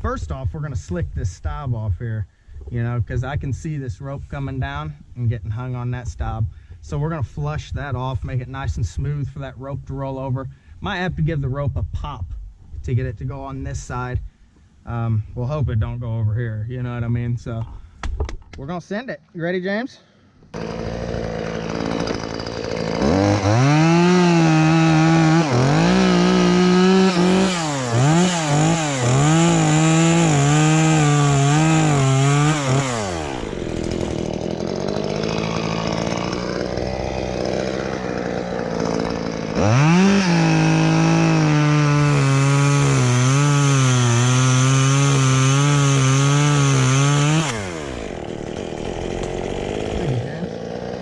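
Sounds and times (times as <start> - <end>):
chainsaw cutting wood: 20.5 - 51.0
chainsaw idling: 20.5 - 51.0.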